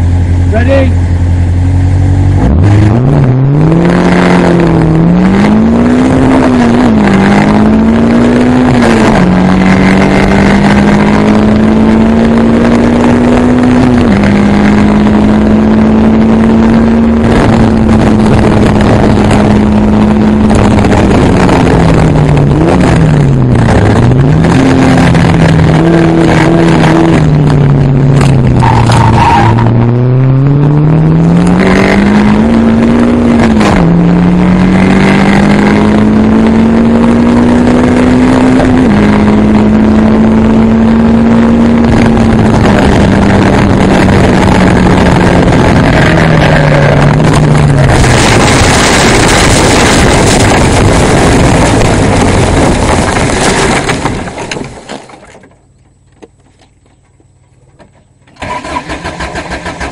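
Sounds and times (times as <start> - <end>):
sports car engine accelerating: 0.0 - 53.8
car rushing over grass: 45.4 - 56.4.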